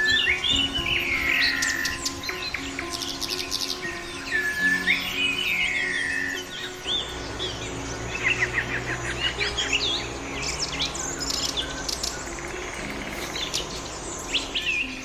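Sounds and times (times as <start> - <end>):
small songbirds chirping: 0.0 - 15.0.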